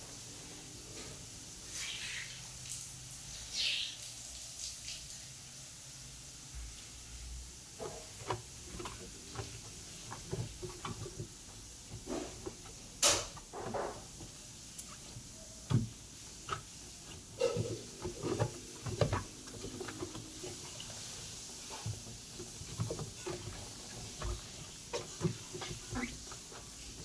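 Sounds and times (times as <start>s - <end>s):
washing machine parts clattering: 7.7s - 27.0s.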